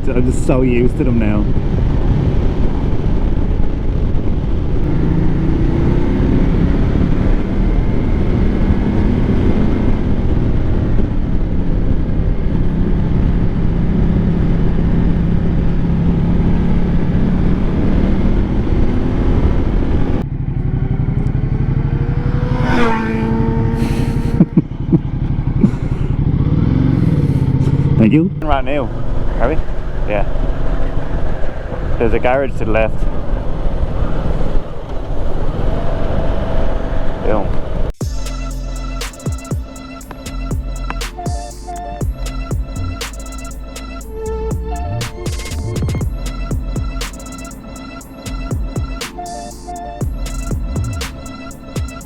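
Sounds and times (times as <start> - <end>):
wind noise: 0.0 - 20.2
motorcycle engine running: 4.8 - 29.4, 38.0 - 52.0.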